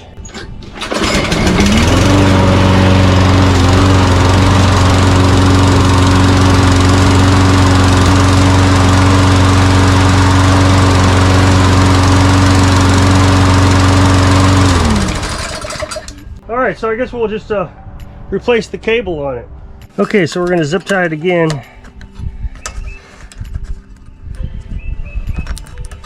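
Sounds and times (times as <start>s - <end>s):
lawn mower engine running: 0.6s - 16.4s.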